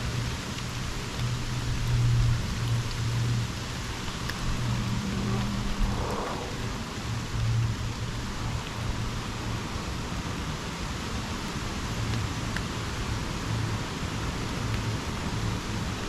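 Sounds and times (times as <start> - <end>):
raindrop ticks: 0.0 - 16.0
steady rain hiss: 0.0 - 16.0
low rumble: 0.7 - 9.2.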